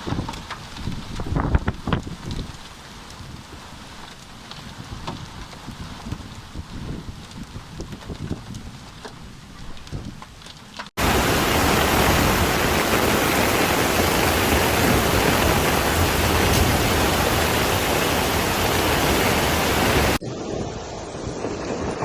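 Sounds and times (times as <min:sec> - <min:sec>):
floodwater rushing: 0:11.0 - 0:20.2
faint rushing noise: 0:11.0 - 0:21.2.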